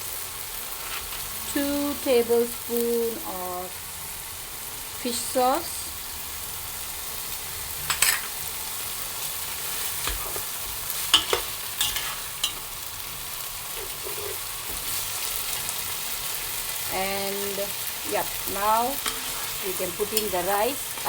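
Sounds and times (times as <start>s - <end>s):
chicken sizzling in a pan: 0.0s - 21.0s
utensil scraping a pan: 0.8s - 1.3s, 7.9s - 8.4s, 9.7s - 12.6s, 18.9s - 20.3s.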